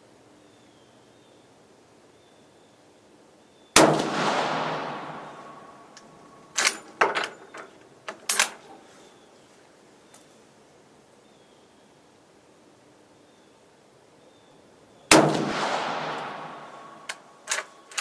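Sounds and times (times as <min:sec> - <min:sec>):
rifle shot with echo: 0:03.8 - 0:06.7, 0:15.1 - 0:17.3
rifle bolt metallic clacks: 0:04.8 - 0:08.8, 0:16.1 - 0:18.0.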